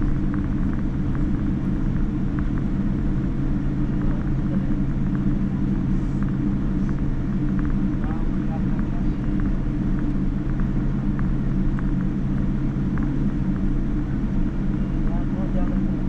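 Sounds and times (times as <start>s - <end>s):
airliner cabin engine drone: 0.0s - 16.0s.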